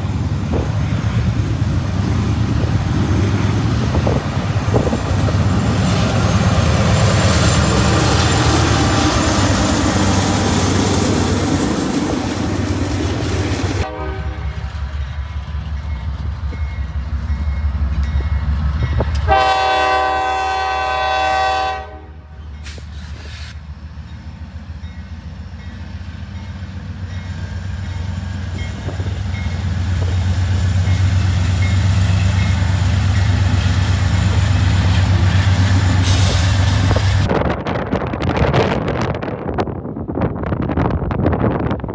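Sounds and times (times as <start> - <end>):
diesel locomotive engines rumbling: 0.0 - 41.9
rail noise: 0.0 - 41.9
train air horn blast: 13.8 - 14.6, 19.3 - 22.8.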